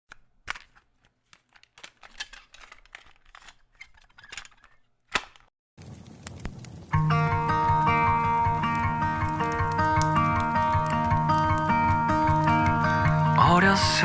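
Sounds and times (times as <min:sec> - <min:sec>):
cassette player plastic clicks: 0:00.1 - 0:05.5
tape hiss: 0:05.8 - 0:14.0.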